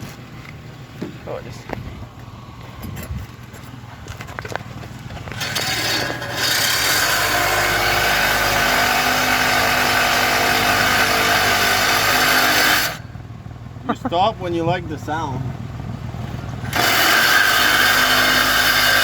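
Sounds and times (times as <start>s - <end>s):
power tool cutting steel pipe: 5.3s - 13.1s, 16.6s - 19.0s.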